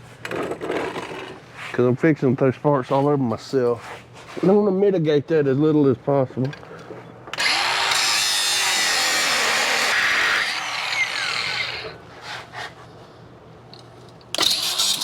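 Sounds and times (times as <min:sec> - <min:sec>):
grinder cutting metal: 0:07.4 - 0:12.0, 0:14.4 - 0:15.0.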